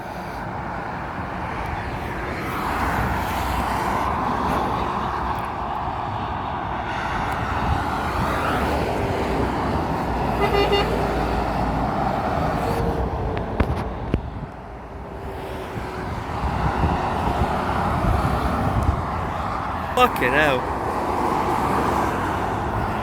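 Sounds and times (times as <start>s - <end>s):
heavy road traffic: 0.0s - 23.0s
vehicle horn toot: 10.4s - 11.1s.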